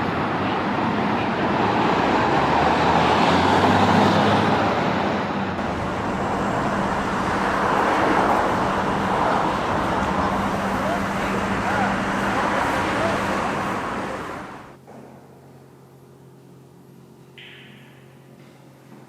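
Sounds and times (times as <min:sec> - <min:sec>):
cars passing: 0:00.0 - 0:14.8.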